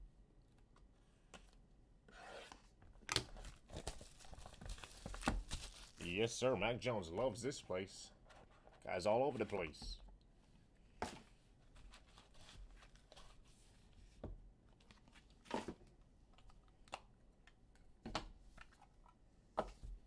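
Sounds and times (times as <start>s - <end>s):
light rustling of packaging: 2.4s - 6.5s, 10.9s - 17.6s.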